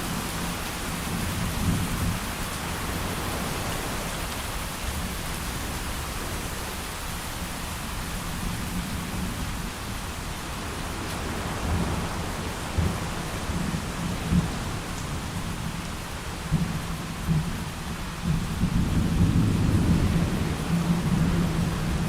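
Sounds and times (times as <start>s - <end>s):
heavy rain: 0.0s - 22.0s
low rolling thunder: 11.2s - 22.0s.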